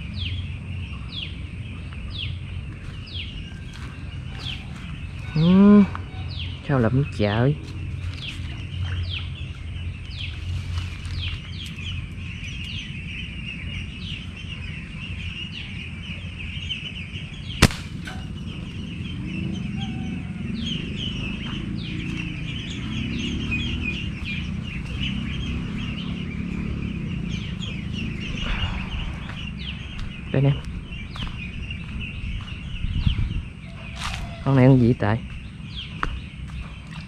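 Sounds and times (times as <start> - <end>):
birds chirping: 0.0 - 37.0
sharp snap: 17.6 - 18.3.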